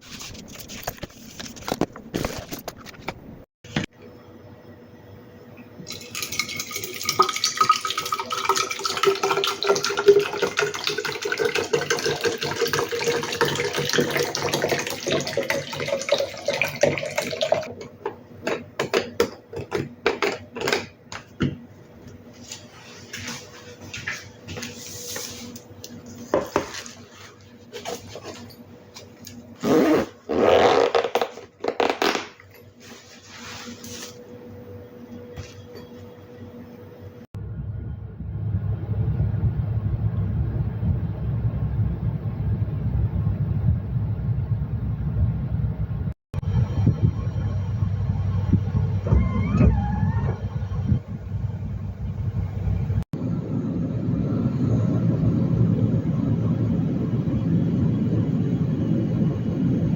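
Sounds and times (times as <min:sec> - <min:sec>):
scraping noises: 0:00.0 - 0:03.8, 0:22.3 - 0:28.6, 0:32.8 - 0:34.2
tap water filling a container: 0:05.9 - 0:17.8.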